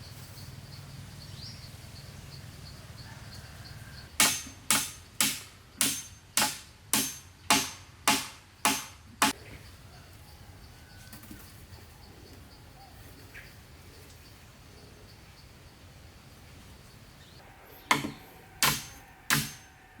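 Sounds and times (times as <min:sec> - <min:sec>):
hand tool striking wood: 0:04.2 - 0:09.4, 0:17.9 - 0:19.8.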